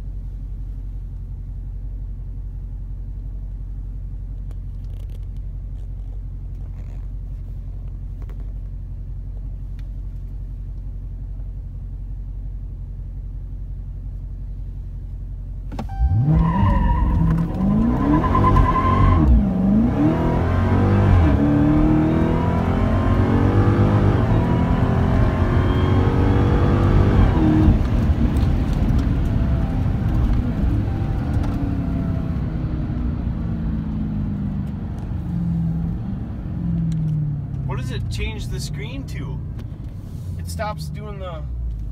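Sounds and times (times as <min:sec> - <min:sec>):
car engine idling and revving: 0:00.0 - 0:41.9
tyre squeal: 0:15.8 - 0:19.4.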